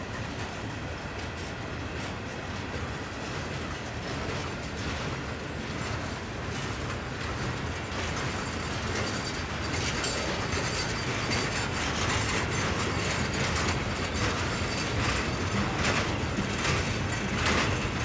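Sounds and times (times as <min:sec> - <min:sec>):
train wheels rumbling on rails: 0:00.0 - 0:18.0
wheels clicking and clanking: 0:01.2 - 0:18.0.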